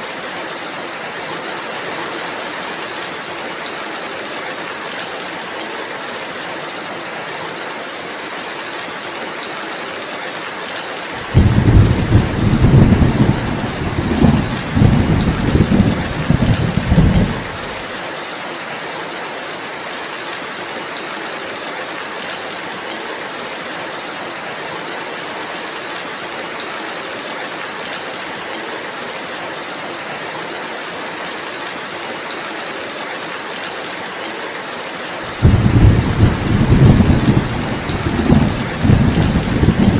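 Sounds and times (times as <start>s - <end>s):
steady rain falling: 0.0s - 39.9s
thunder rumbling: 11.2s - 17.8s, 35.3s - 39.9s.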